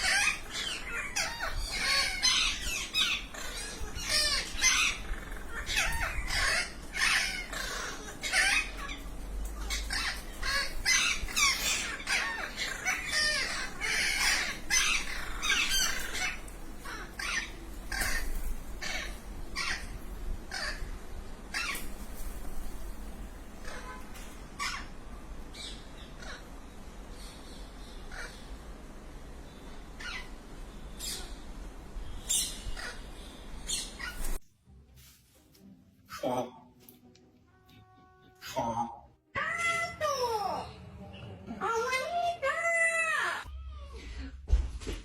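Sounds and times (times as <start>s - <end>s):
parrot squawking: 0.0s - 21.8s, 23.6s - 25.0s, 25.6s - 26.6s, 28.0s - 28.6s, 30.0s - 30.4s, 32.3s - 34.4s.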